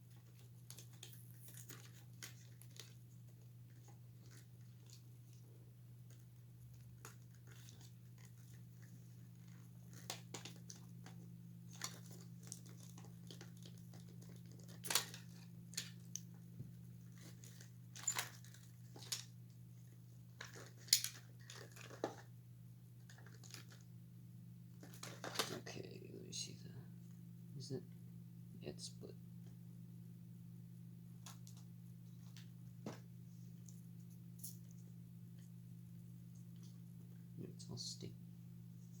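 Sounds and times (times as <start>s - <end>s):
low steady hum: 0.0s - 39.0s
plastic parts clicking and cracking: 0.2s - 3.0s, 7.0s - 16.3s, 17.1s - 19.3s, 20.3s - 22.3s, 23.0s - 23.8s, 24.8s - 25.6s.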